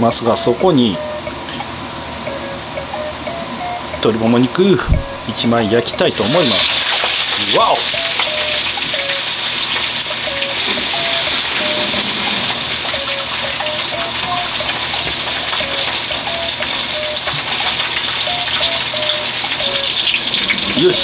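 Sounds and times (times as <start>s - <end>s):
chicken sizzling in oil: 6.2s - 21.0s.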